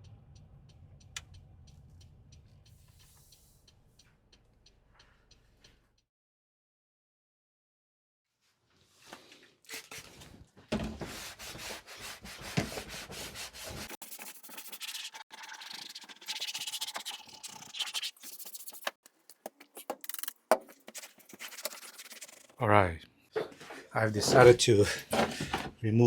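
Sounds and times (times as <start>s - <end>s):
low rumble: 0.0s - 3.0s
rubbing and scraping: 8.8s - 22.6s, 23.3s - 25.8s.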